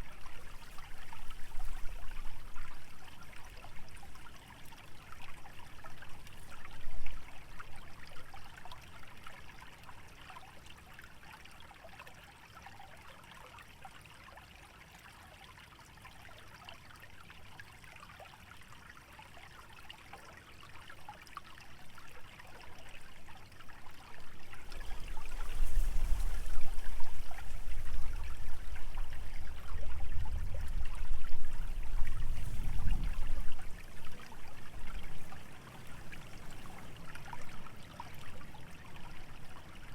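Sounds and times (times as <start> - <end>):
stream trickling: 0.0 - 39.9
dry vegetation rustling: 24.6 - 29.2
wind buffeting microphone: 24.6 - 36.8.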